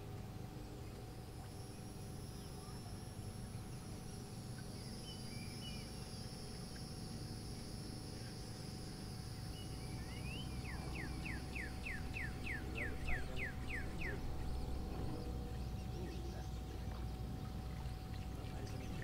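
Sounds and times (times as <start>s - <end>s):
bird whistling: 9.5s - 14.3s.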